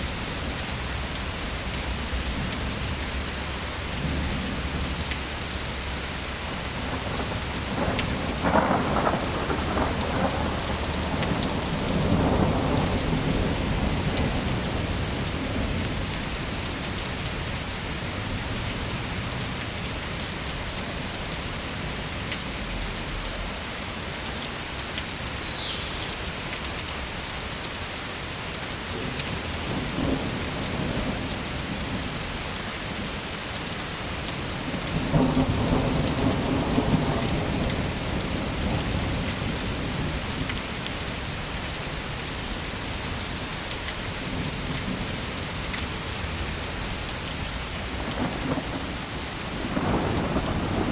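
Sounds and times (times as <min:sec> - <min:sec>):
steady rain hissing: 0:00.0 - 0:50.9
thunder rumble: 0:02.0 - 0:17.5, 0:34.5 - 0:41.6, 0:44.0 - 0:50.9.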